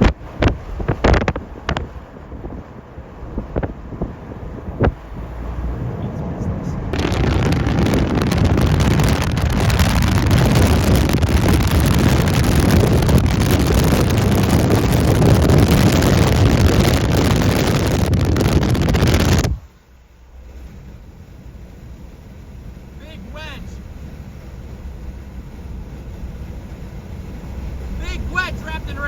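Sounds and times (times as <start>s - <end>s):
wind buffeting microphone: 0.0s - 19.7s.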